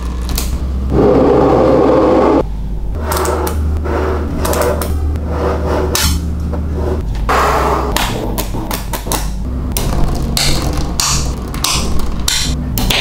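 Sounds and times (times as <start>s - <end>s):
magnetic balls clicking together: 7.9s - 13.0s.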